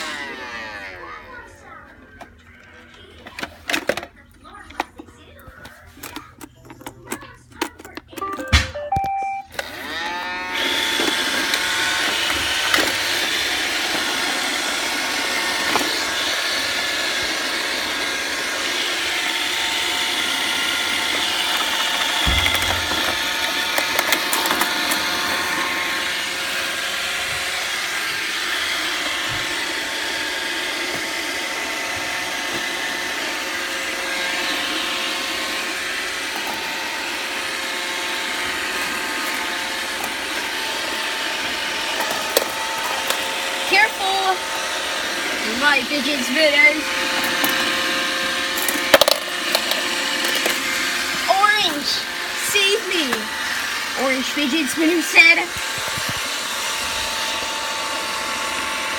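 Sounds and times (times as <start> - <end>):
robot vacuum whirring: 0.0 - 58.9
whining tones: 20.2 - 30.0.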